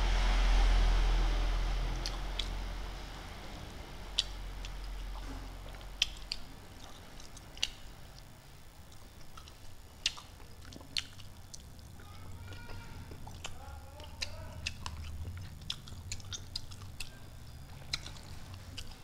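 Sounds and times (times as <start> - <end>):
low rumble: 0.0 - 8.4
man chewing food: 4.1 - 19.0
wet mouth clicks and smacks: 6.0 - 7.8.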